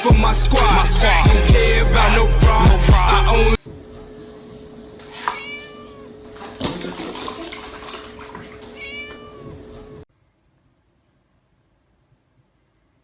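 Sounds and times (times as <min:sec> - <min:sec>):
steady hum: 0:00.1 - 0:06.6
cat meowing: 0:05.1 - 0:06.3, 0:08.7 - 0:10.0.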